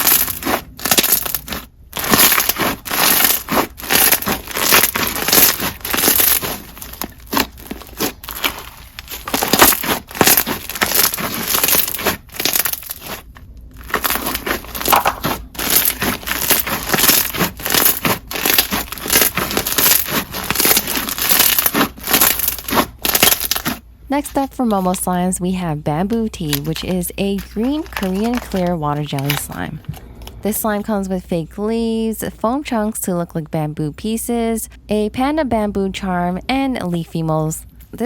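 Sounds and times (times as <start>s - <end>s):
crunchy slime crackling: 0.0s - 25.0s, 26.4s - 30.4s.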